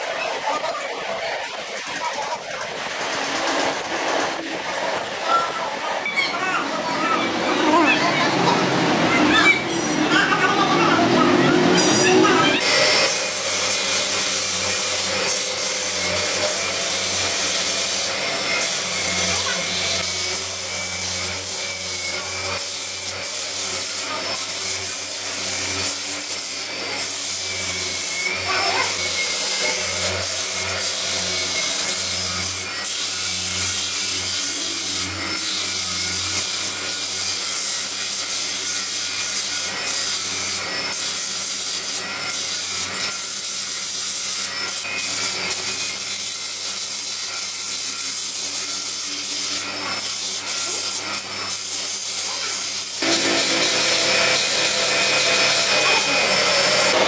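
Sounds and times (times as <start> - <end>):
electric sander running: 10.1 - 57.0.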